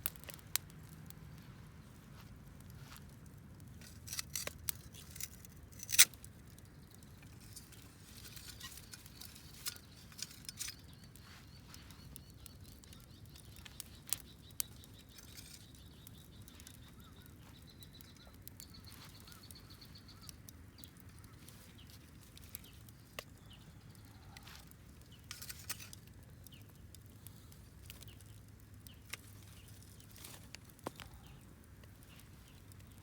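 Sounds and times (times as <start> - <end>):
campfire crackling and popping: 0.0 - 33.0
faint bird chirps: 8.4 - 24.6.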